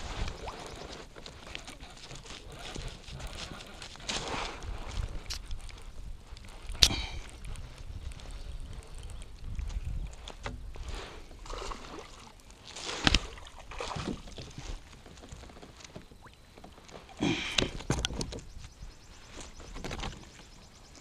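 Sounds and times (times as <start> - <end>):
water splashing: 11.4 - 14.9.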